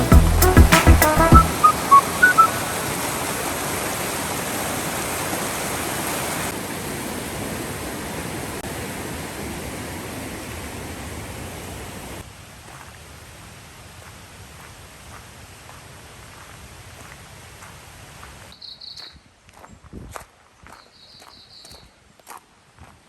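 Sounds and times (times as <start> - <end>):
short high notes: 0.0 - 2.9
rushing water: 0.0 - 18.5.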